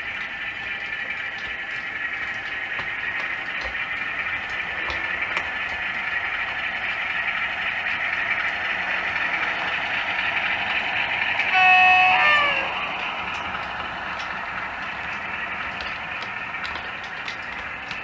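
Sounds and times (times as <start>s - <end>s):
model locomotive running sound: 0.0s - 18.0s
locomotive horn: 11.4s - 12.9s.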